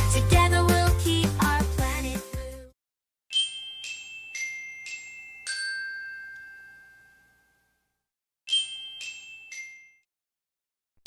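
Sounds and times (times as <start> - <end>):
descending glockenspiel chime notes: 3.3 - 7.8.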